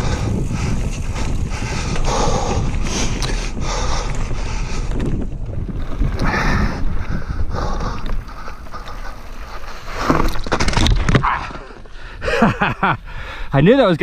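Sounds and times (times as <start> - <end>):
tyres rumbling over trail: 0.0 - 14.0
wind buffeting microphone: 0.0 - 14.0.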